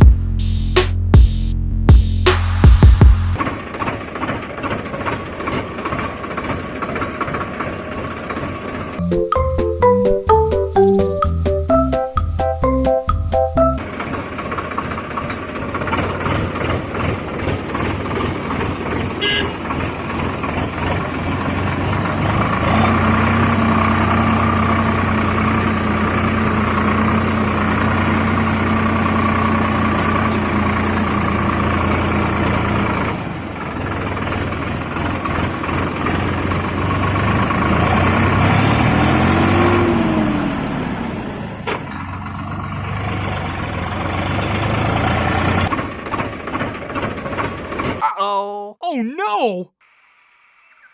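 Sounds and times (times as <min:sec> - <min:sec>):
short rising falling tone: 0:09.0 - 0:13.9
tractor engine droning: 0:11.1 - 0:47.9.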